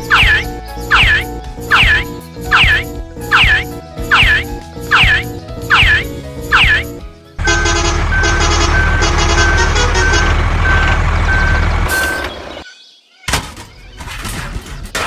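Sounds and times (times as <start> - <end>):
reversing alarm beeping: 0.0 - 12.4
truck engine running: 7.4 - 12.6.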